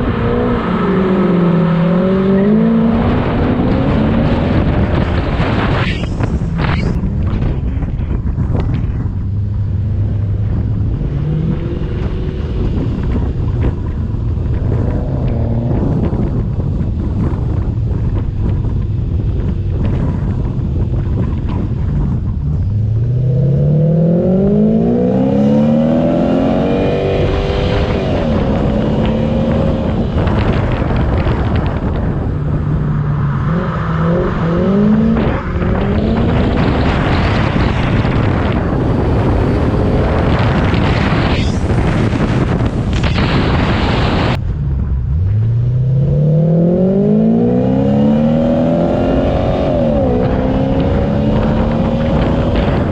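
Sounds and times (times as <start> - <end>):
dense rushing noise: 0.0 - 52.9
car engine revving hard: 23.2 - 30.5, 33.4 - 41.3, 45.2 - 52.9.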